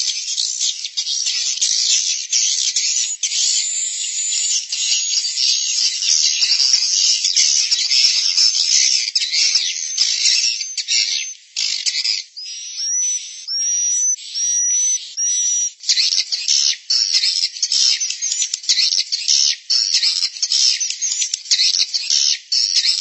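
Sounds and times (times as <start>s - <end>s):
high-pitched twittering chirps: 0.0s - 23.0s
rising bird calls: 0.8s - 15.8s.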